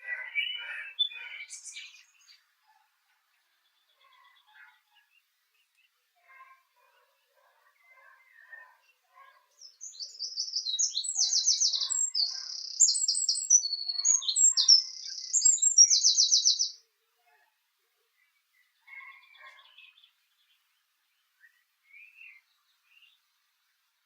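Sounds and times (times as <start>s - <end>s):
small songbird singing: 0.0s - 2.7s, 3.3s - 16.8s, 18.1s - 24.0s.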